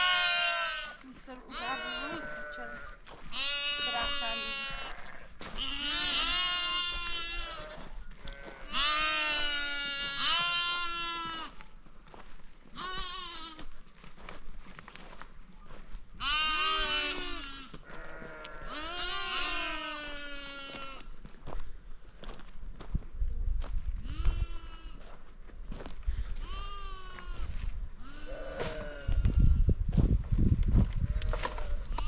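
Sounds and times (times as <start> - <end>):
sheep and goats bleating: 0.0 - 11.6, 12.7 - 13.8, 16.2 - 21.2, 24.0 - 25.2, 26.3 - 29.8, 31.0 - 32.0.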